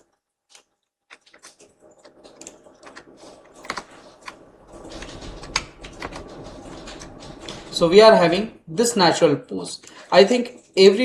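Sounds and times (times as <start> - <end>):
computer keyboard and mouse clicks: 0.5 - 7.5.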